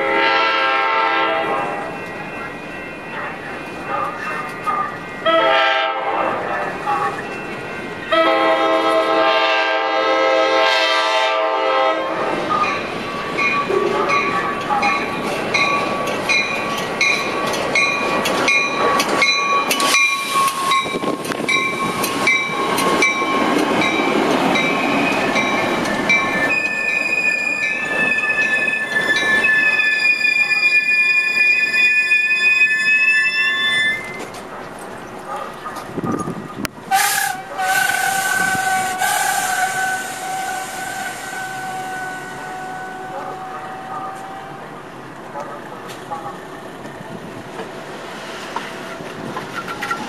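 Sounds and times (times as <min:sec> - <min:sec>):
train horn: 0:00.0 - 0:01.8, 0:05.2 - 0:06.6, 0:08.1 - 0:12.3, 0:36.9 - 0:44.7
train wheels clicking over rail joints: 0:12.2 - 0:29.7, 0:45.3 - 0:50.0
wheel and brake squeal: 0:19.6 - 0:21.1, 0:26.0 - 0:34.4.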